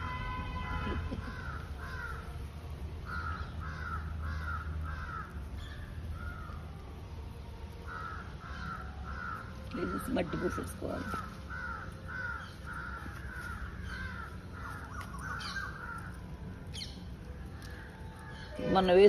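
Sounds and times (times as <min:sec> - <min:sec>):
steady low rumble: 0:00.0 - 0:19.0
crow cawing: 0:00.6 - 0:02.4, 0:03.0 - 0:06.6, 0:07.9 - 0:16.9.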